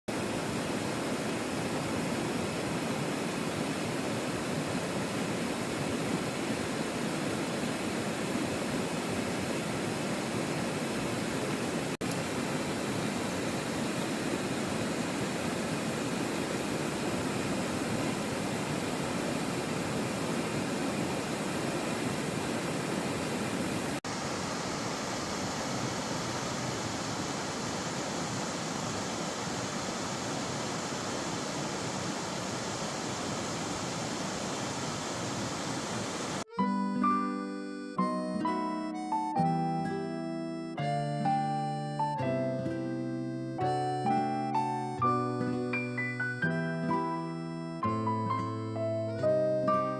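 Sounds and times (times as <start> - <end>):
stream rushing over rocks: 0.1 - 36.5
music: 36.5 - 49.9.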